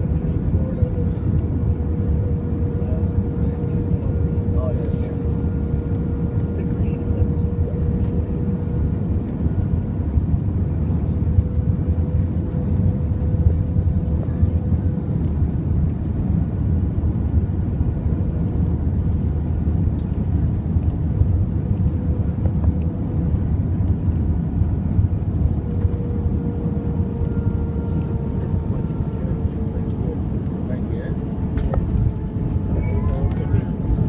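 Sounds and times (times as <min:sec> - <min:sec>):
aircraft engines and airflow rumble: 0:00.0 - 0:34.0
thin steady hum: 0:16.6 - 0:34.0.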